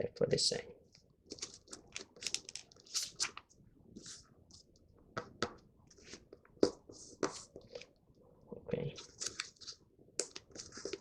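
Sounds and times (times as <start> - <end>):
paper being folded and creased: 1.3 - 4.3, 9.0 - 11.0.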